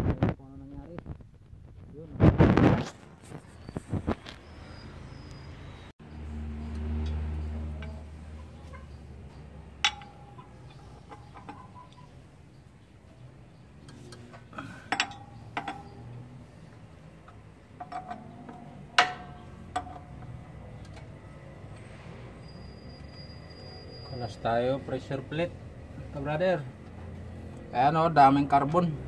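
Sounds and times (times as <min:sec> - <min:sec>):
metal tools clinking: 0:06.6 - 0:12.3, 0:13.6 - 0:16.4, 0:17.1 - 0:21.9.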